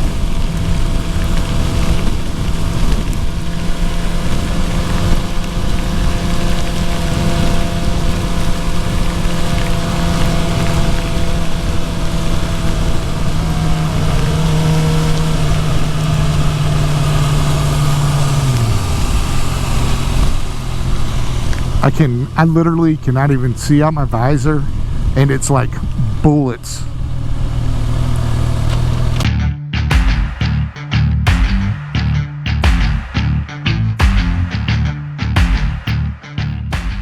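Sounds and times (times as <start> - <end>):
motorcycle engine running: 0.0 - 21.8, 27.0 - 37.0
rain and wind rushing: 0.0 - 23.9.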